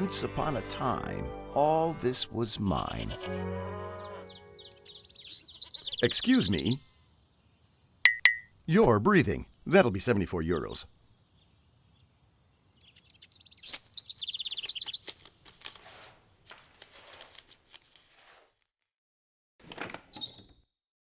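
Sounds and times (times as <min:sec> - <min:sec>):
bird chirping trill: 0:01.3 - 0:08.6, 0:11.0 - 0:15.1
bird twittering: 0:04.0 - 0:08.5, 0:11.2 - 0:15.1.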